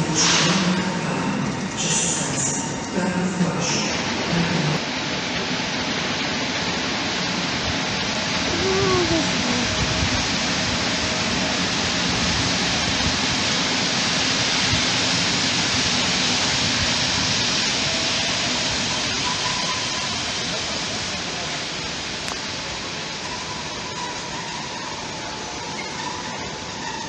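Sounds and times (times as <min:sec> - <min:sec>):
train wheels rushing on rail: 0:00.0 - 0:27.0
high wheel squeal: 0:23.2 - 0:27.0.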